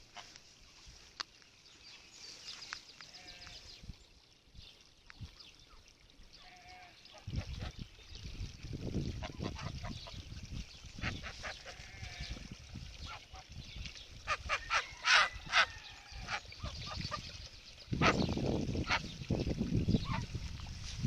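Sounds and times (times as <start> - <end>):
geese honking: 14.3 - 16.4.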